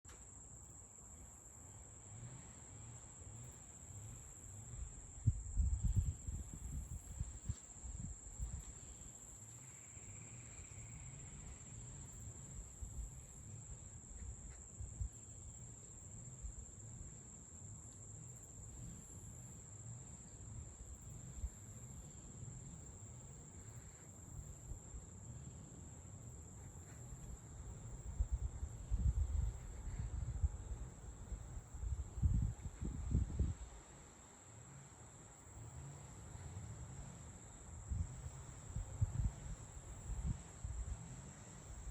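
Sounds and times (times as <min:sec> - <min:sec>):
insects trilling: 0:00.3 - 0:41.9
low uneven rumble: 0:02.0 - 0:33.9.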